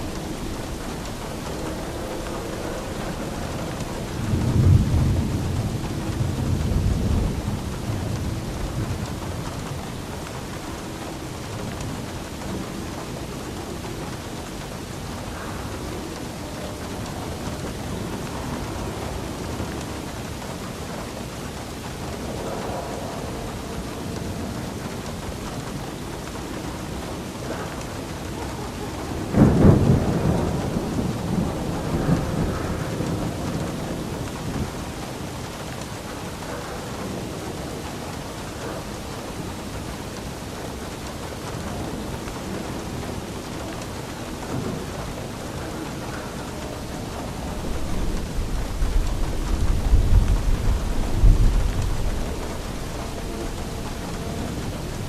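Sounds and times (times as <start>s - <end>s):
steady rainfall: 0.0s - 55.0s
thunder rumbling: 0.0s - 55.0s.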